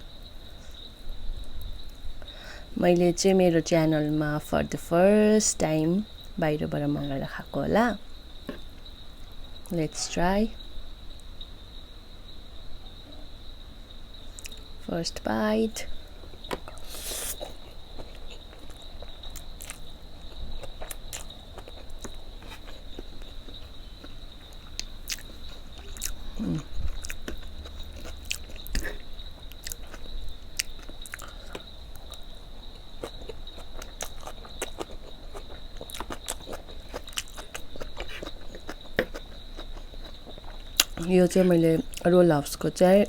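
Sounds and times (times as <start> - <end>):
chewing and biting: 16.3 - 42.1
wet mouth clicks and smacks: 33.0 - 41.0.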